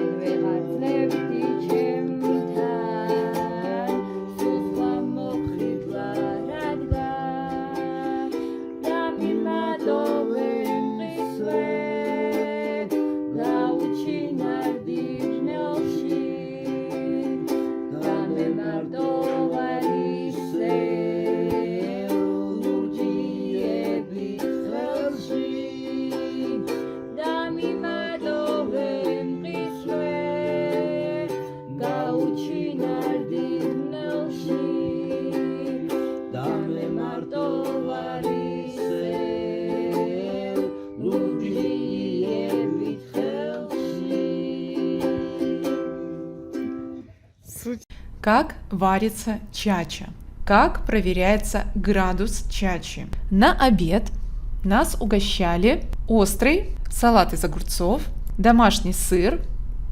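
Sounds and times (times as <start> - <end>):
plucked string instrument music: 0.0 - 47.2.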